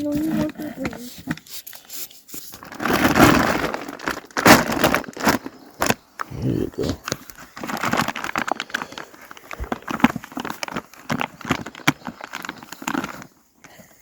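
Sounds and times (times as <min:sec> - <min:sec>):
animals crunching grain: 0:02.4 - 0:13.4.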